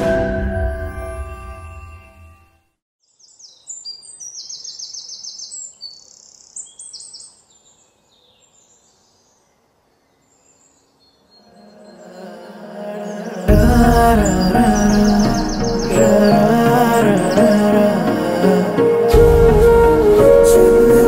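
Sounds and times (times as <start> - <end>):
small birds chirping: 3.0 - 18.3.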